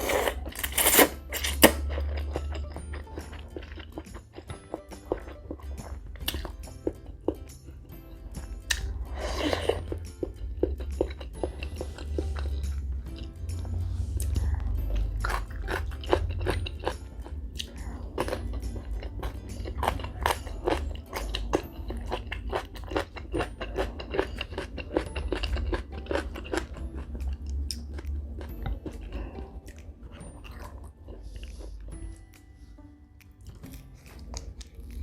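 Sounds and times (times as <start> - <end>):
chewing mouth clicks and smacks: 0.0 - 7.8, 15.0 - 32.5, 33.2 - 35.0.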